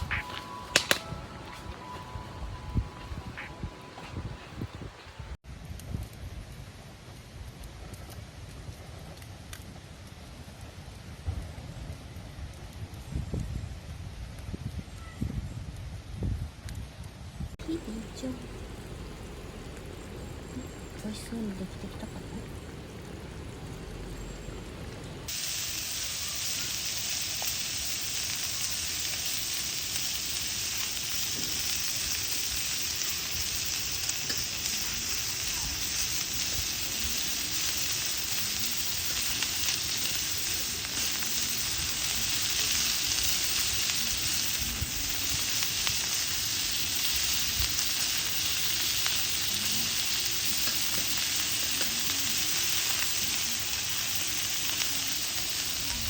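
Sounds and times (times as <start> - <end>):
food sizzling in a pan: 0.0 - 5.4, 17.6 - 56.0.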